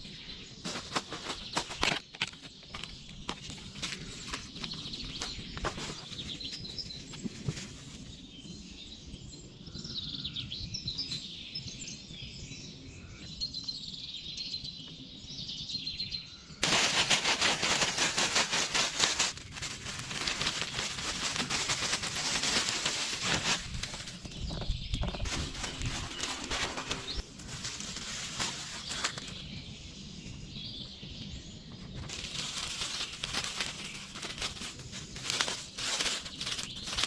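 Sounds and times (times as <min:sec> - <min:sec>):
small birds chirping: 0:00.0 - 0:37.0
dense crackling hiss: 0:16.6 - 0:24.4, 0:32.1 - 0:37.0.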